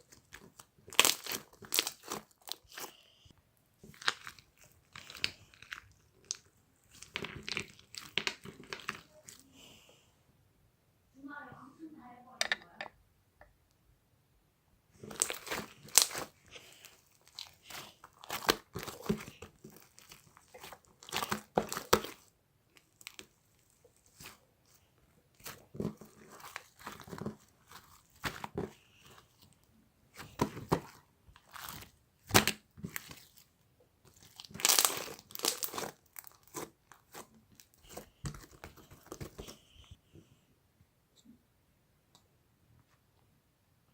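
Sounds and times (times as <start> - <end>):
crinkling and crunching: 0.0 - 3.1, 3.8 - 9.9, 15.0 - 40.0.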